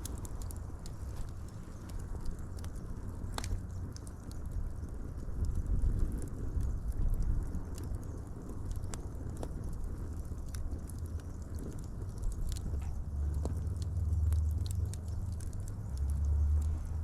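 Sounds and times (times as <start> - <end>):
fire crackling and popping: 0.0 - 17.0
low rumble: 12.1 - 17.0.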